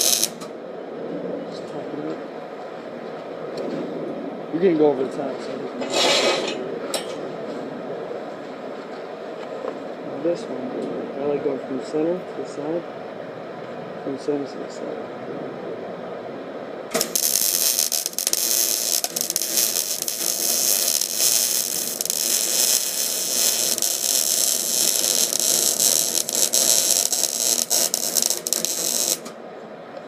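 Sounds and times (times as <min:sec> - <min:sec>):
welding arc crackling buzz: 0:00.0 - 0:00.5, 0:16.9 - 0:29.4.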